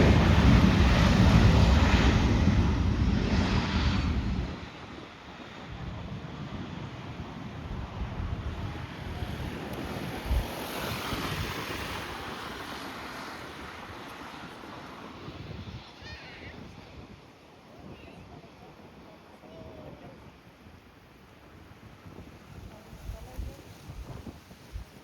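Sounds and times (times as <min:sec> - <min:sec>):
jet engine rushing: 0:00.0 - 0:16.5
wind buffeting microphone: 0:00.0 - 0:20.4, 0:21.6 - 0:25.0.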